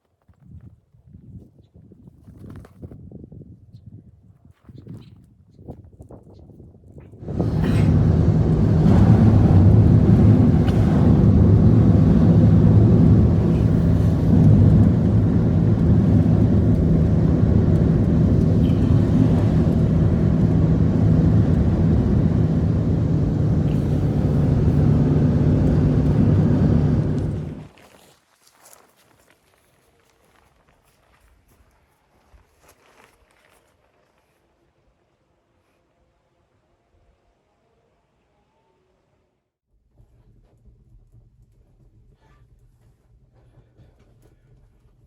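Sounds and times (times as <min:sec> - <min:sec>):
engine running: 0:07.2 - 0:27.7.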